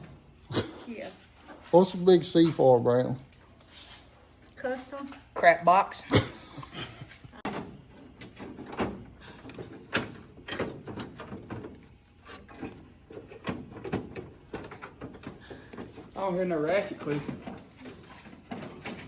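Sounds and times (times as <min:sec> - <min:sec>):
hand tools clicking and knocking: 0:07.4 - 0:16.2.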